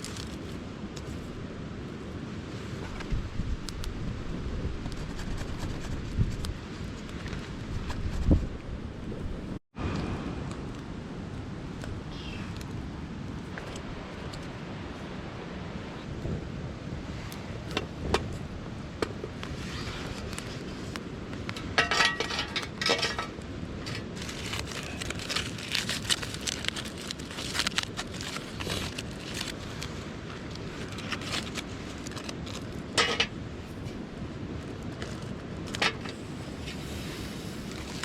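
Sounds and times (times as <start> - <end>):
campfire crackling: 0.0 - 7.9, 10.4 - 38.0
metal cookware clinking: 21.8 - 23.3.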